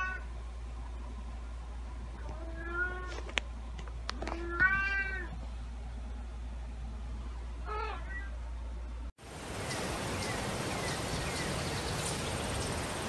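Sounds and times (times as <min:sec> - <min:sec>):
cat meowing: 0:00.0 - 0:00.2, 0:02.2 - 0:03.1, 0:04.2 - 0:05.4, 0:07.6 - 0:08.4
steady low hum: 0:00.0 - 0:13.0.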